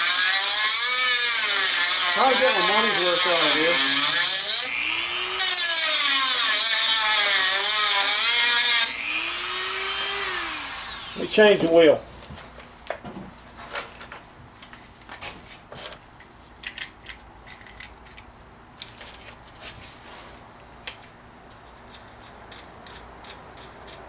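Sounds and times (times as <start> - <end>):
tool handling clicks and taps: 16.2 - 18.9.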